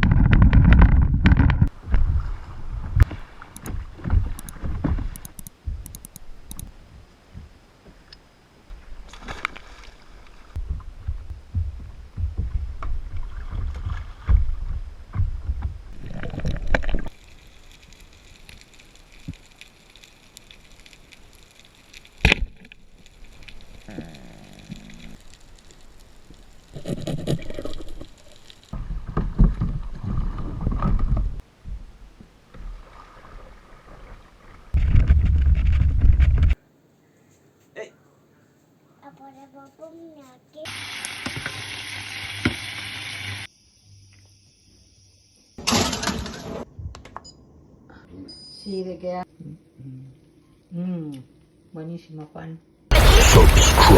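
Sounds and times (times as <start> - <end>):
kayak paddle splashing: 1.8 - 5.2, 8.8 - 10.6, 13.1 - 14.8.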